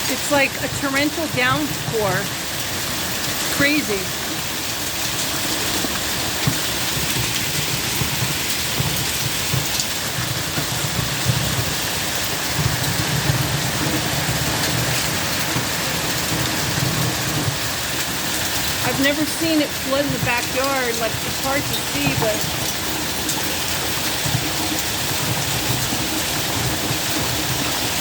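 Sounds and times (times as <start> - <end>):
raindrops ticking on hard surfaces: 0.0 - 28.0
torrential rain pouring: 0.0 - 28.0.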